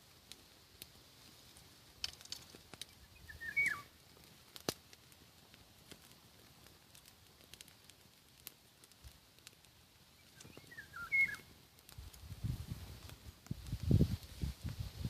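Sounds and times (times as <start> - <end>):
campfire crackling: 0.0 - 15.0
nightingale song: 2.8 - 3.9, 10.1 - 11.5.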